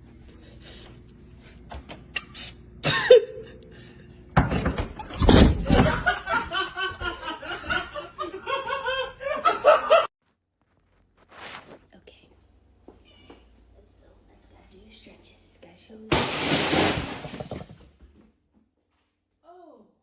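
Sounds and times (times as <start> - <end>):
people laughing hard: 5.6 - 10.1.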